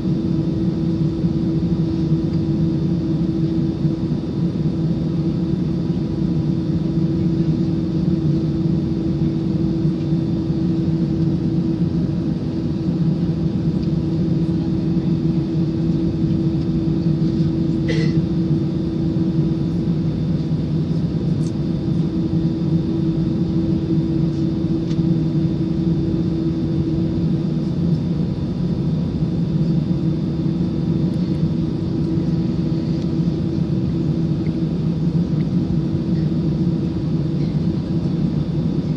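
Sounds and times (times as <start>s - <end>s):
jet engine cabin drone: 0.0s - 38.9s.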